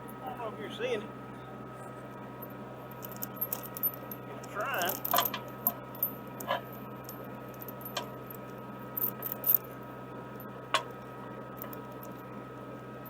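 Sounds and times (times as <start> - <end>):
excavator running: 0.0 - 13.0
metal chain clinking: 2.4 - 9.8, 10.4 - 12.3.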